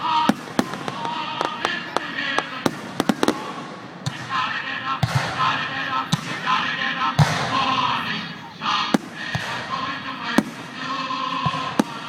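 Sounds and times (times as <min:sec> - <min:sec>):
fireworks crackle: 0:00.0 - 0:05.6
fireworks bangs: 0:00.0 - 0:12.0.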